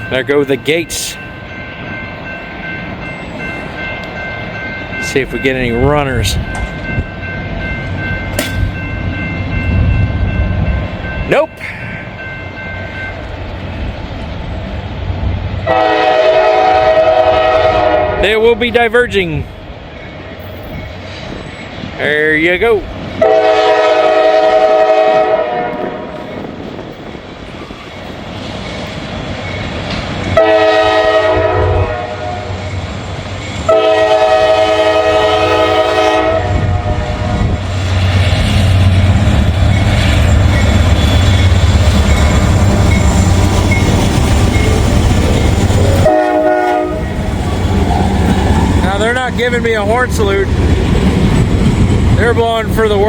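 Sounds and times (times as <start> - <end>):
diesel locomotives rumbling past: 0.0 - 53.0
locomotive air horn blasts: 15.7 - 18.2, 23.2 - 26.0, 30.4 - 32.6, 33.7 - 37.5, 46.0 - 47.2.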